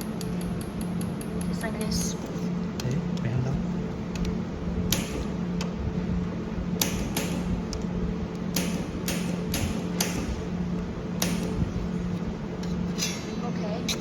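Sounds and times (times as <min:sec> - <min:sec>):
machine hum: 0:00.0 - 0:14.0
laser welder snaps: 0:04.9 - 0:05.7.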